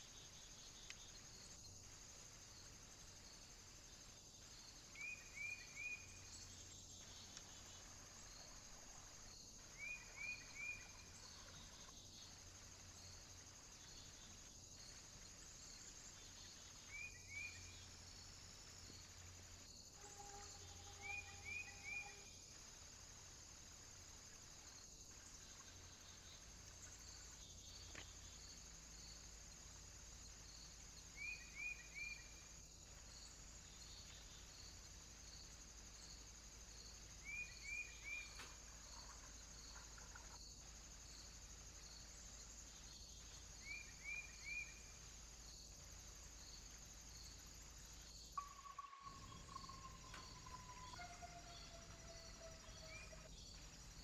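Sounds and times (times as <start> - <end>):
crickets pulsing: 0.0 - 54.0
bird chirping: 20.1 - 22.3, 48.4 - 53.6.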